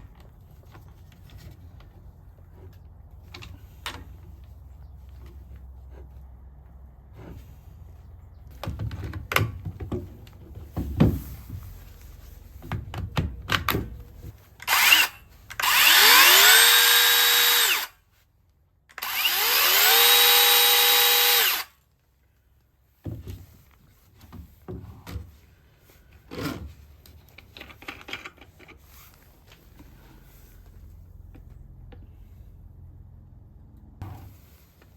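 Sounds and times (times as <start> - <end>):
knocking and clatter of handling: 0.0 - 14.6, 22.9 - 30.0
power saw motor whine: 14.7 - 18.0, 19.0 - 21.7.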